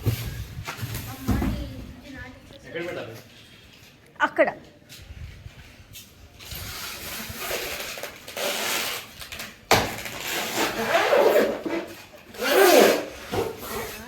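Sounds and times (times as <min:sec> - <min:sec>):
packaging rustling and scraping: 0:05.6 - 0:14.0.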